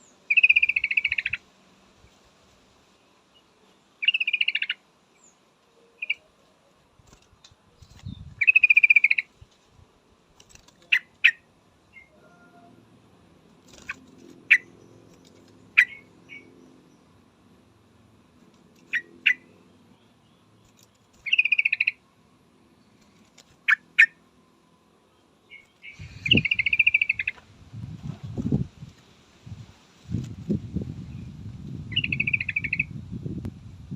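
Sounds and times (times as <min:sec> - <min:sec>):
bird chattering: 0:00.3 - 0:01.4, 0:04.0 - 0:04.8, 0:08.4 - 0:09.3, 0:13.7 - 0:16.5, 0:21.2 - 0:22.0, 0:25.5 - 0:27.4, 0:31.9 - 0:33.0
bulbul calling: 0:00.3 - 0:01.4, 0:04.0 - 0:04.8, 0:08.0 - 0:09.3, 0:10.8 - 0:12.7, 0:13.7 - 0:16.5, 0:18.8 - 0:19.6, 0:21.2 - 0:22.0, 0:23.6 - 0:24.2, 0:25.5 - 0:27.4, 0:31.9 - 0:33.0.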